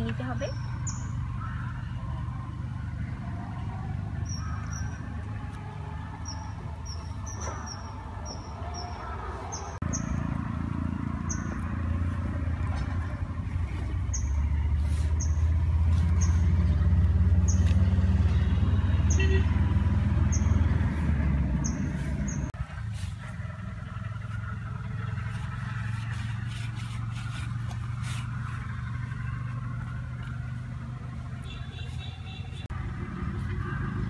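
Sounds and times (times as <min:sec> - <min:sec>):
bird chirping: 0:00.3 - 0:01.7, 0:06.1 - 0:10.2, 0:11.2 - 0:11.7, 0:14.0 - 0:14.5, 0:20.2 - 0:20.7.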